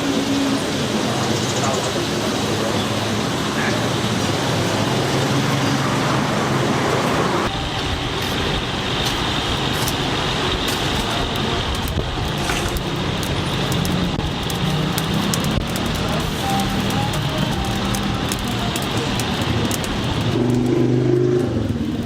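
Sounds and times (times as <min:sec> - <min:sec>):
wok flame roar: 0:00.0 - 0:22.0
crackles and clicks: 0:07.0 - 0:22.0
food sizzling in wok: 0:07.4 - 0:22.0.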